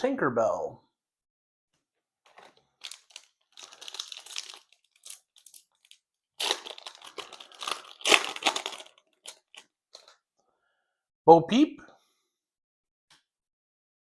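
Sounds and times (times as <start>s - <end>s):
foil wrapper crinkling and tearing: 2.3s - 10.2s.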